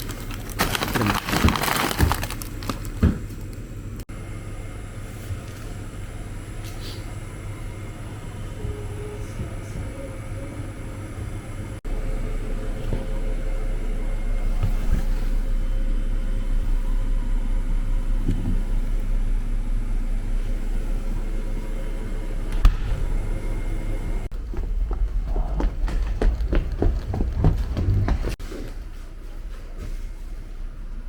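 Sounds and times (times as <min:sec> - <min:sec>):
vehicle rumbling in motion: 0:08.4 - 0:31.0.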